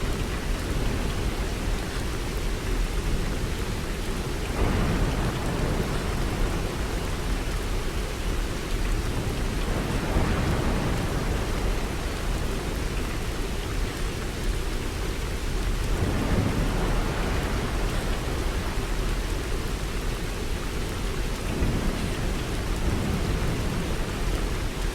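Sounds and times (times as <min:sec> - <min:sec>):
steady rain falling: 0:00.0 - 0:24.9
thunder rumbles: 0:03.1 - 0:13.4, 0:15.8 - 0:24.9.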